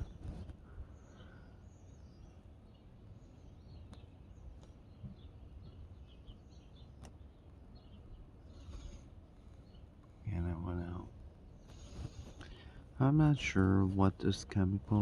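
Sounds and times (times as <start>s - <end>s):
wind rumble on microphone: 0.0s - 0.9s
small birds chirping: 0.0s - 15.0s.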